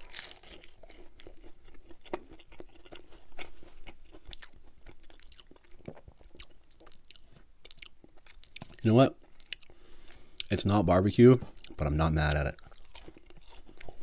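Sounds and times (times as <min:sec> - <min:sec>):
chewing crunchy chicken nugget: 0:00.0 - 0:09.8, 0:11.6 - 0:14.0.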